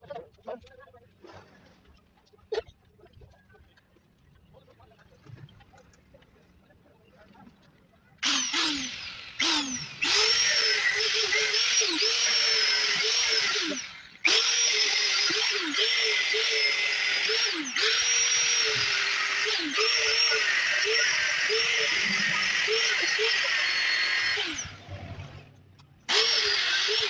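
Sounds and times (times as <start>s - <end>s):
angle grinder grinding steel: 8.2s - 25.2s, 26.1s - 27.0s.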